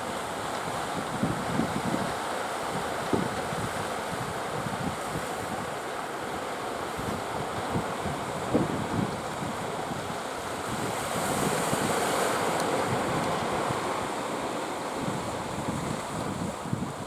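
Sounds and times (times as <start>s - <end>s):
wind buffeting microphone: 6.9s - 17.0s.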